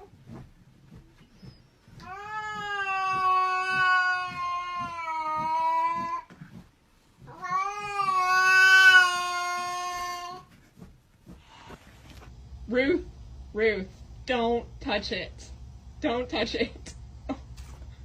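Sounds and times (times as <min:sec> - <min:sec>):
cat yowling: 0:02.0 - 0:06.2, 0:07.3 - 0:10.5.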